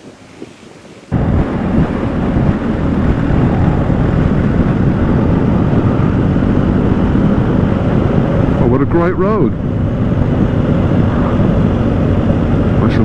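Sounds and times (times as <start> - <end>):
wind noise on microphone: 0.0 - 13.0
motorcycle running: 1.1 - 13.0.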